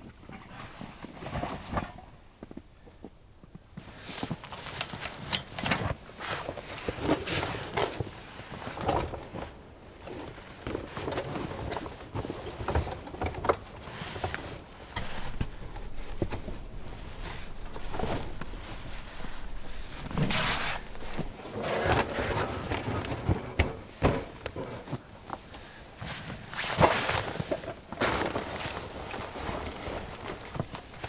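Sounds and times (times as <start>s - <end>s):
rustling: 9.3s - 23.9s, 25.4s - 31.0s
knocks and clicks of handling: 15.0s - 21.4s.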